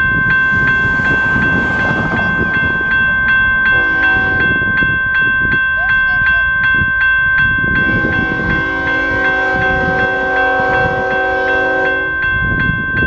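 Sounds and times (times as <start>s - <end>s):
railroad crossing bell ringing: 0.0s - 13.0s
rumble of passing train: 0.0s - 13.0s
locomotive horn blast: 0.5s - 4.9s, 7.8s - 12.2s.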